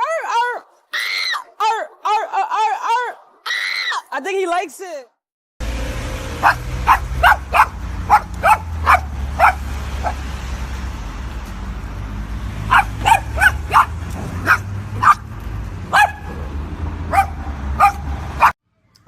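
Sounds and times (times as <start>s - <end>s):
dog yipping: 6.4s - 10.2s, 12.7s - 15.3s, 15.9s - 16.4s, 17.1s - 18.6s.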